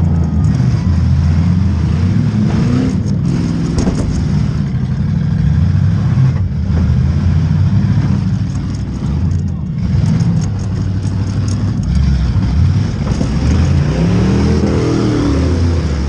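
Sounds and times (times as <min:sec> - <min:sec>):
car engine revving: 0:00.0 - 0:16.0
metal clanks: 0:03.0 - 0:05.1, 0:08.3 - 0:14.0.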